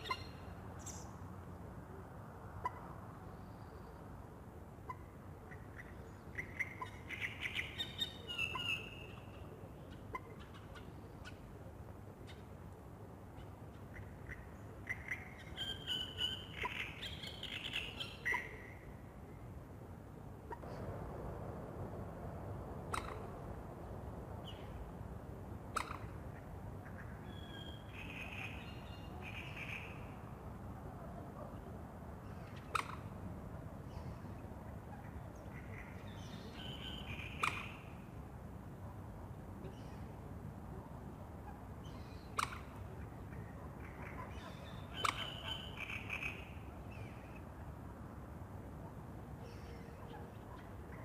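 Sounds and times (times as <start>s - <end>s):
low background rumble: 20.4s - 27.8s.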